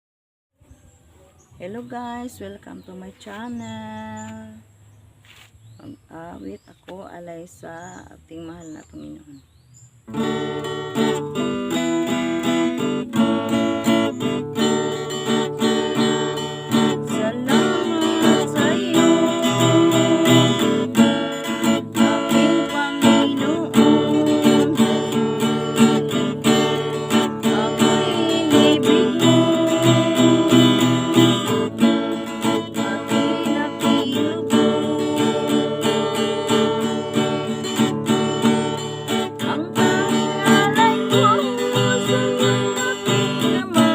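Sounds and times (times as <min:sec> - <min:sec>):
acoustic guitar strumming chords: 0:10.1 - 0:43.9.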